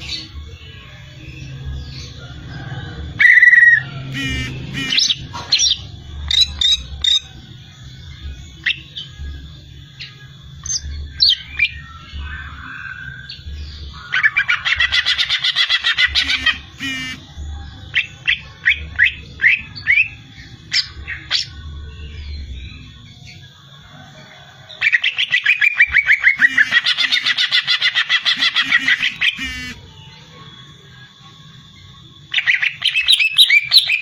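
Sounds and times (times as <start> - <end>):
loud buzzy bird note: 4.1 - 5.4, 16.1 - 17.3, 26.4 - 27.5, 28.3 - 29.9
fast rattling bird trill: 4.2 - 7.3, 14.1 - 17.2, 24.8 - 29.8
bird singing whistles and chirps: 32.3 - 34.0.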